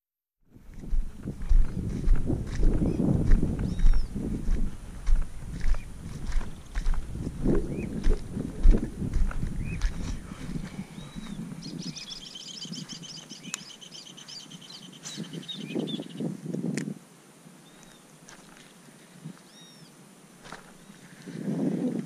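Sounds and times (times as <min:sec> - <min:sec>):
footsteps in grass: 0:00.5 - 0:15.3, 0:17.8 - 0:19.5, 0:20.4 - 0:21.8
birds calling: 0:00.9 - 0:16.3, 0:17.6 - 0:18.7.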